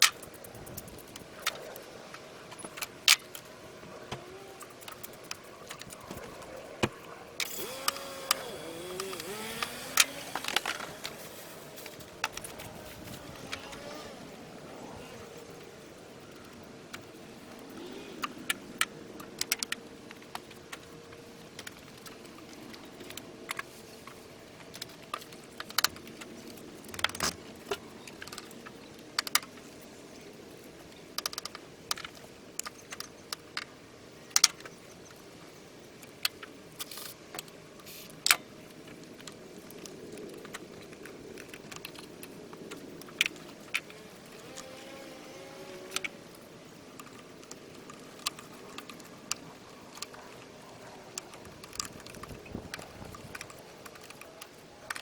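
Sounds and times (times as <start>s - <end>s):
faint steady hum: 0.0s - 55.0s
metallic clicks of hand tools: 7.4s - 11.2s.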